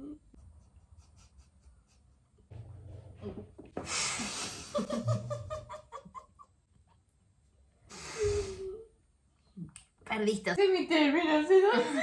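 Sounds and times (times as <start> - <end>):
woman giggling: 4.4 - 6.5, 11.6 - 12.0.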